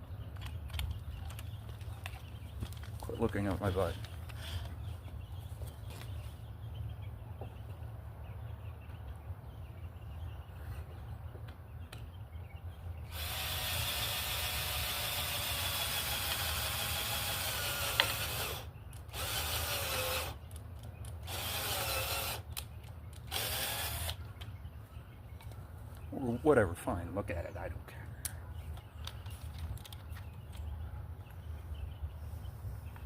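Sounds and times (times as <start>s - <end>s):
cordless drill running: 13.1s - 20.4s, 21.2s - 22.5s, 23.3s - 24.2s.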